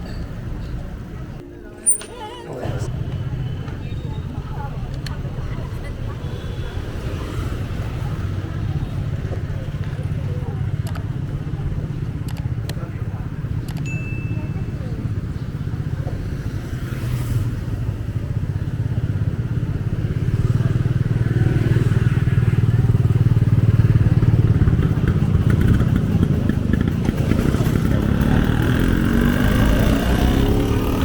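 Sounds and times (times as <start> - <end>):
street voices: 0.0 - 31.0
motorbike engine running: 17.7 - 31.0.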